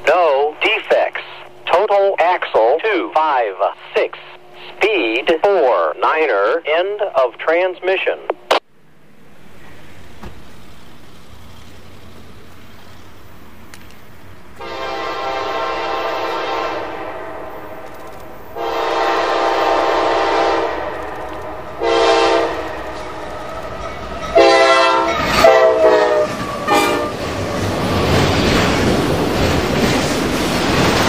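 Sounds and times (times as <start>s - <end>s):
train rumbling: 0.0s - 31.0s
locomotive air horn blasts: 14.6s - 17.7s, 18.6s - 23.0s, 24.3s - 27.2s.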